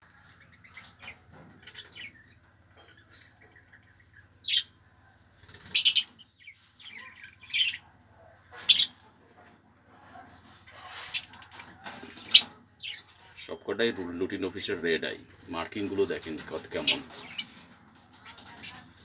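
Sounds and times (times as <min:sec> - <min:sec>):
lovebirds chirping: 0:00.2 - 0:04.8, 0:05.6 - 0:07.9, 0:08.5 - 0:09.0, 0:12.1 - 0:17.6.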